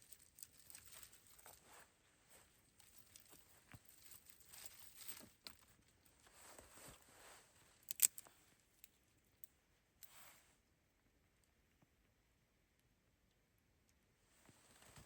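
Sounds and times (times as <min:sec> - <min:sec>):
rustling and crunching: 0:00.0 - 0:10.4, 0:14.4 - 0:15.0.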